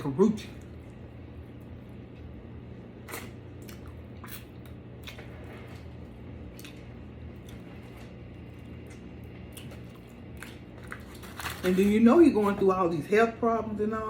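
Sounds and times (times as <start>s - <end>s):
steady low hum: 0.0s - 14.0s
chewing and mouth smacks: 3.0s - 11.4s.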